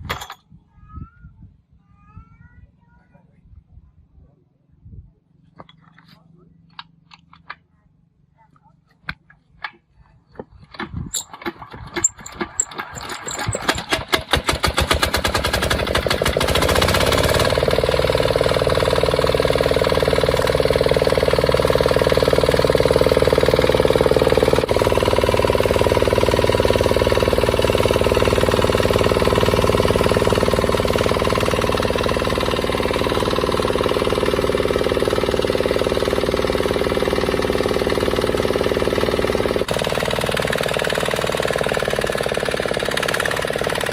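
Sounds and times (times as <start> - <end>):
diesel engine starting: 11.2 - 43.9.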